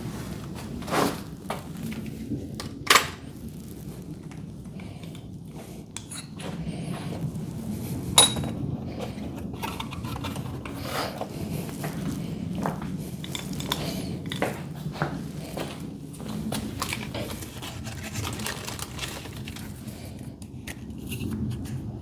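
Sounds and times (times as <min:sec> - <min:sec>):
low background rumble: 0:00.0 - 0:22.0
metal hardware clinking: 0:08.2 - 0:08.6.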